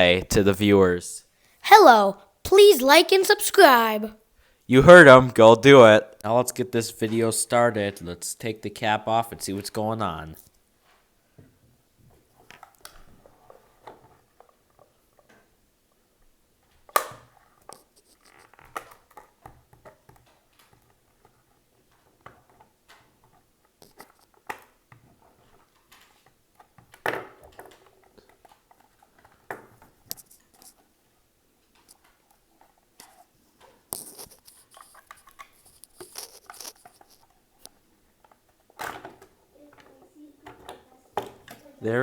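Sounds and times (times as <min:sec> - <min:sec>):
small plastic clicks and scrapes: 0:31.8 - 0:41.6.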